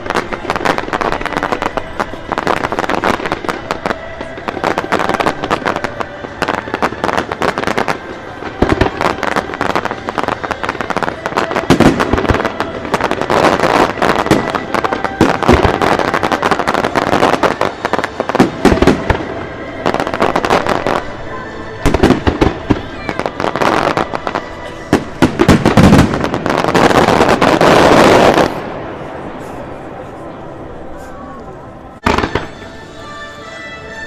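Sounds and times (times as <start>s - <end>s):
fireworks cracking and banging: 0.0s - 29.8s, 32.0s - 33.0s
heavy firework booms: 21.8s - 29.0s.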